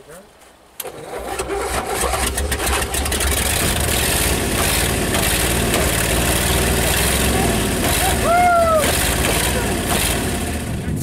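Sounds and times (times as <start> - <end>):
car engine running: 2.2 - 11.0.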